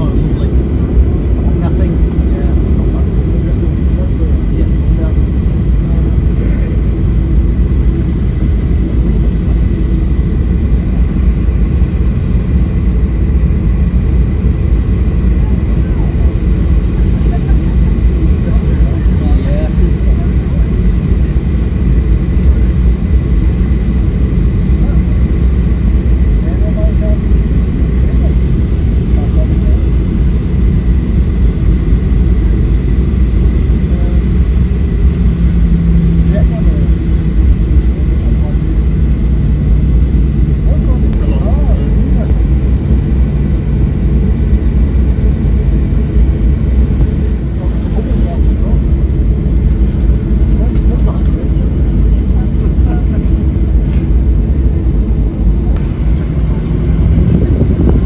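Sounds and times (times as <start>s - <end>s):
jet engines running: 0.0s - 58.0s.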